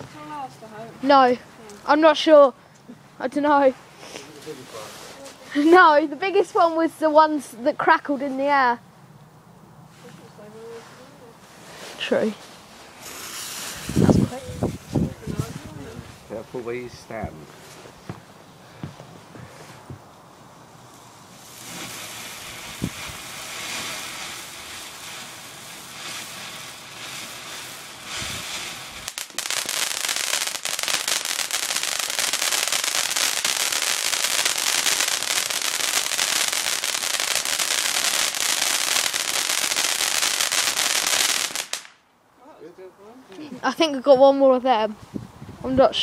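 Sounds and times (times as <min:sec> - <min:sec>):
firework crackling spray: 0:00.0 - 0:08.7, 0:09.9 - 0:42.0
firework fountain hissing: 0:09.9 - 0:42.0.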